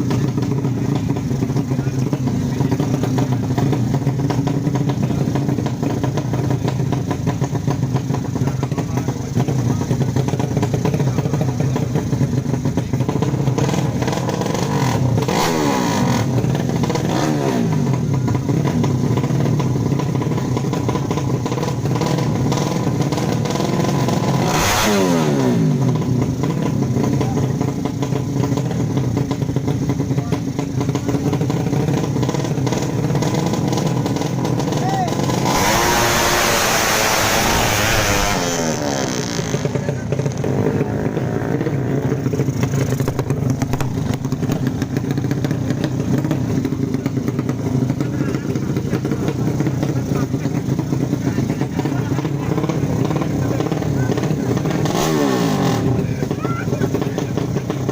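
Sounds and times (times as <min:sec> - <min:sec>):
motorcycle engines running loudly: 0:00.0 - 0:57.9
falling-pitch engine sweeps: 0:35.4 - 0:39.6.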